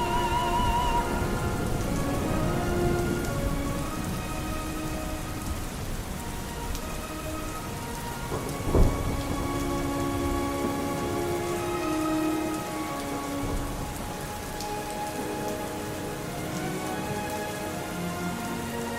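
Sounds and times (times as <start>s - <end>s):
thunderclap: 0.0s - 17.2s
steady rain falling: 0.0s - 18.9s.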